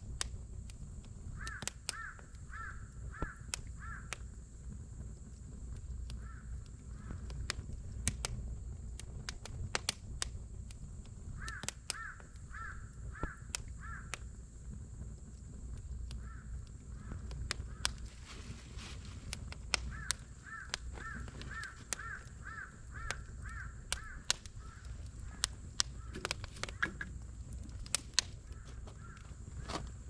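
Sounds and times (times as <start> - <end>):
campfire crackling and popping: 0.0 - 30.0
crow cawing: 1.4 - 4.2, 6.2 - 7.3, 11.4 - 14.2, 16.2 - 18.1, 19.9 - 27.1, 28.4 - 29.9.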